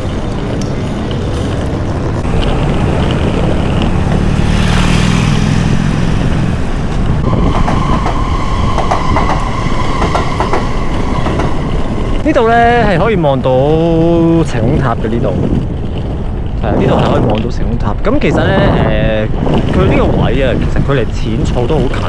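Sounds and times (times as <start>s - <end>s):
high whine: 0.0s - 14.0s
train rumbling past: 0.0s - 22.0s.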